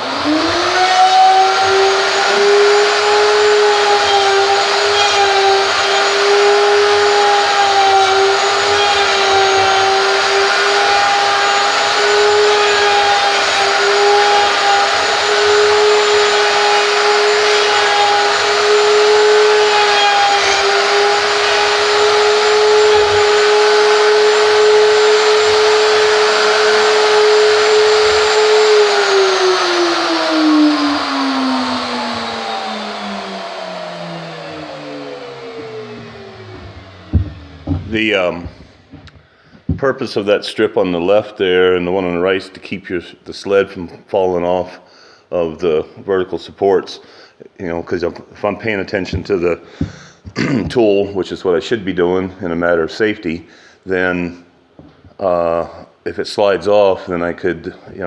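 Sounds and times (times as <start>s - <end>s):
wood router whine: 0.0s - 39.8s.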